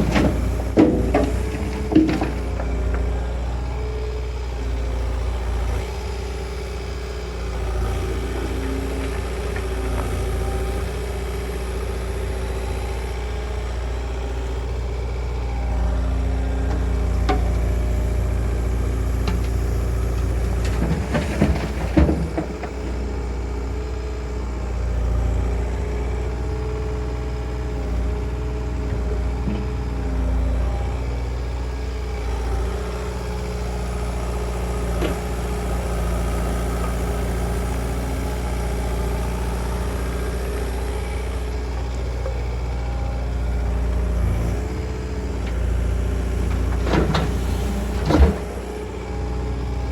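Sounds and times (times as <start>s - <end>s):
metal knocks and clanks: 0.0s - 3.1s
diesel engine running: 0.0s - 49.9s.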